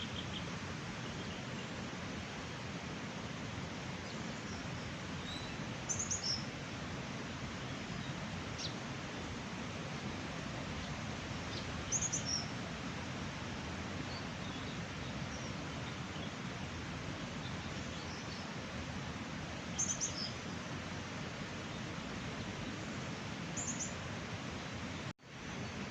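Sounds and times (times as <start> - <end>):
small birds chirping: 0.0 - 1.8, 4.0 - 6.5, 10.8 - 12.6, 19.6 - 20.6.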